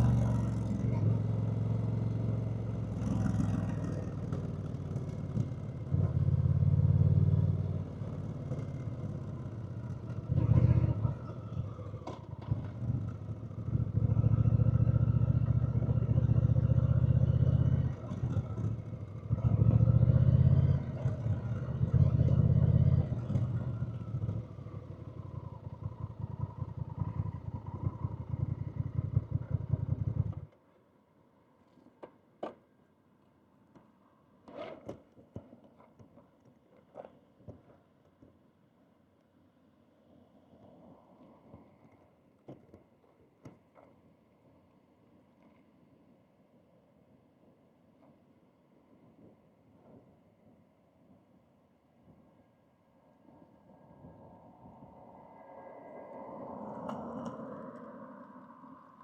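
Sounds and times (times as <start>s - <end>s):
motorcycle engine running: 0.0s - 30.5s.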